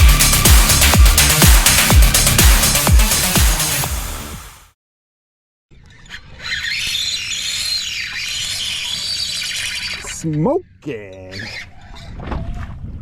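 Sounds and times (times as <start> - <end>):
electronic music: 0.0 - 4.6
fishing reel drag screaming: 6.4 - 10.2.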